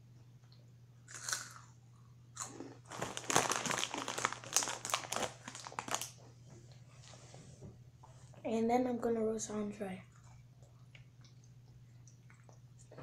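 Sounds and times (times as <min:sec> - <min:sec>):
crunchy snack being chewed: 0:01.1 - 0:01.7, 0:02.4 - 0:06.2.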